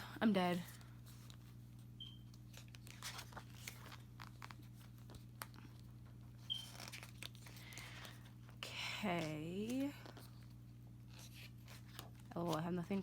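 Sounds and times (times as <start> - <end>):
paper rustling: 2.4 - 8.4, 9.2 - 13.0.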